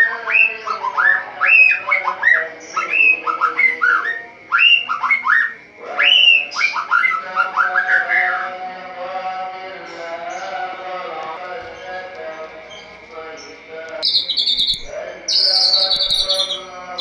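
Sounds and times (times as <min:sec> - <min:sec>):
bird singing whistled notes: 0:14.0 - 0:17.0.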